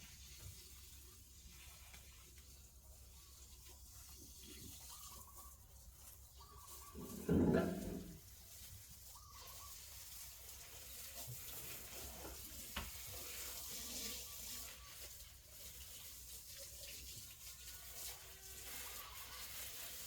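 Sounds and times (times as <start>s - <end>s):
faint running tap water: 7.0s - 20.0s.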